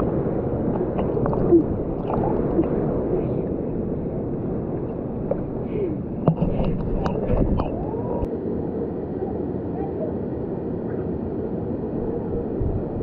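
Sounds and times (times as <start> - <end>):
bubbling: 0.0 - 8.3
muffled river water rushing: 0.0 - 8.3.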